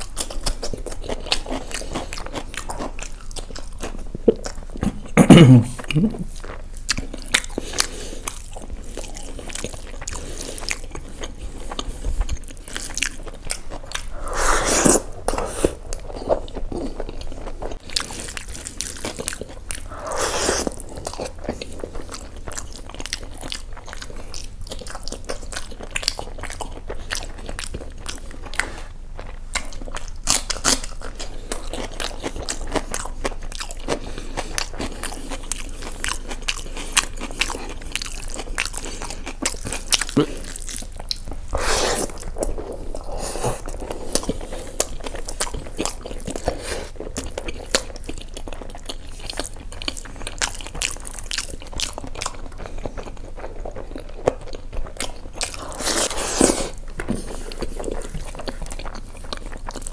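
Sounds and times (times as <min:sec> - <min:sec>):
man chewing food: 0:00.0 - 0:59.9.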